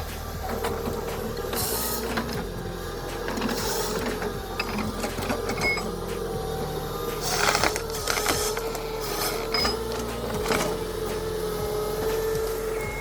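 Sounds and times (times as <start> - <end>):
machinery whining: 0.0 - 13.0.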